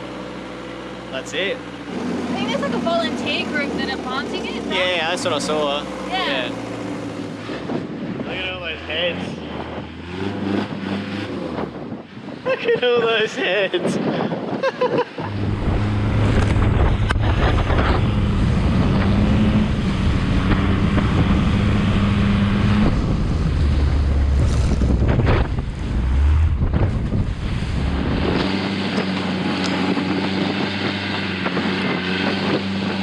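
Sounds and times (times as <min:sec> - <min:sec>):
boat engine running: 0:00.0 - 0:12.2, 0:15.1 - 0:33.0
wind buffeting microphone: 0:06.8 - 0:33.0
water noise: 0:15.0 - 0:33.0.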